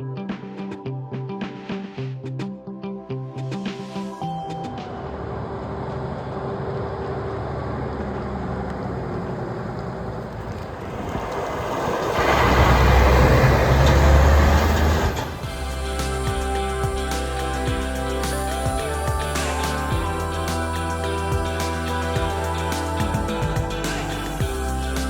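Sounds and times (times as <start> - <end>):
road noise: 4.7 - 25.0
diesel engine running: 5.0 - 25.0.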